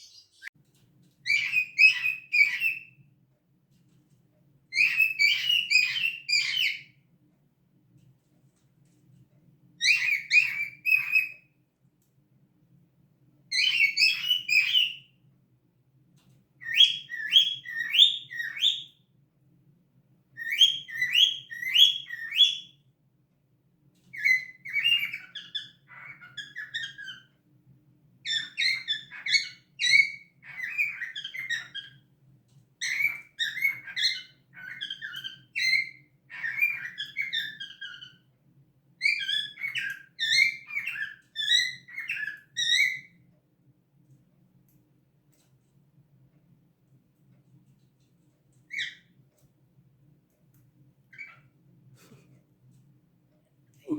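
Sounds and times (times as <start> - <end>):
cockatiel chirping and whistling: 0.0 - 0.5, 1.3 - 3.0, 4.7 - 7.0, 9.8 - 11.5, 13.5 - 15.1, 16.6 - 19.0, 20.4 - 22.8, 24.1 - 27.4, 28.3 - 32.0, 32.8 - 38.3, 39.0 - 43.1, 48.7 - 49.1, 51.1 - 51.5.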